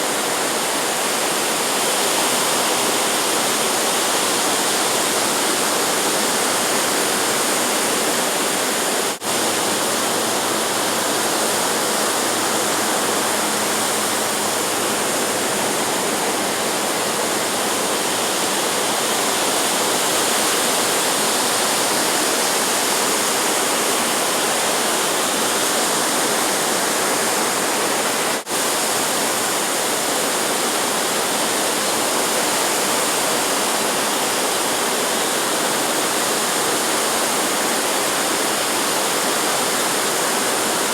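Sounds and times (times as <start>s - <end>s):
ocean surf rushing: 4.7s - 31.4s.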